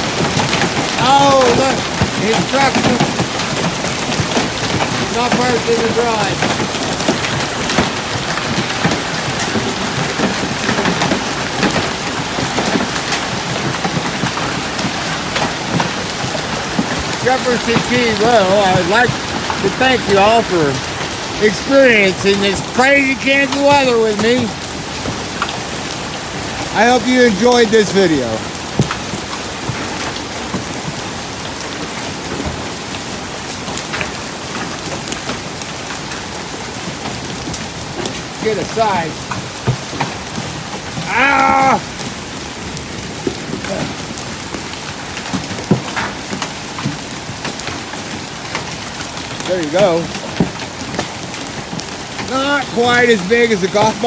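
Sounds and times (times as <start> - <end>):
hailstone impacts: 0.0 - 33.1, 33.8 - 54.0
heavy rain patter: 0.0 - 54.0.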